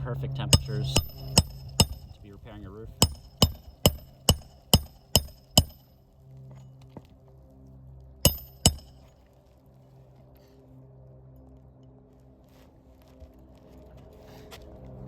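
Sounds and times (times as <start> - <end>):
hammer striking metal tool: 0.5 - 2.2, 3.0 - 5.9, 8.3 - 9.1.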